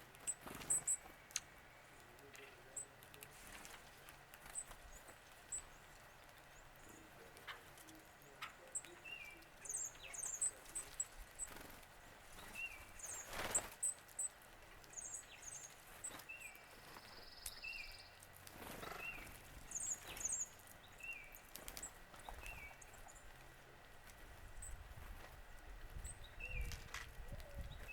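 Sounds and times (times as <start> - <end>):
high bird chirps: 8.4 - 11.7, 14.9 - 18.2.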